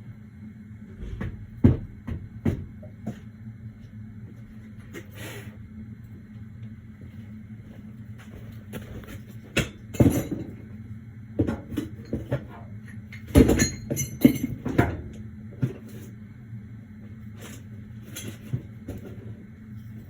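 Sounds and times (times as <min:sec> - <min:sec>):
low hum: 0:00.0 - 0:20.0
metal objects clattering: 0:13.2 - 0:15.0.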